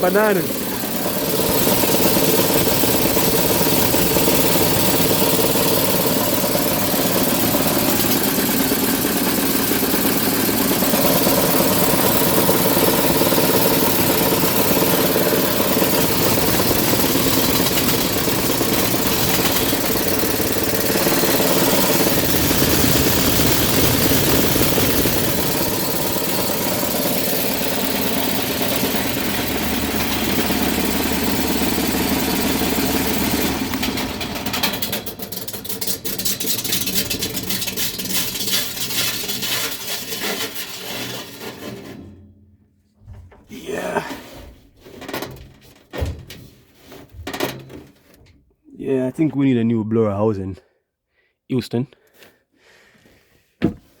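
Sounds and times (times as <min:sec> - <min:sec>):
furnace blower humming and vibrating: 0:00.0 - 0:35.3.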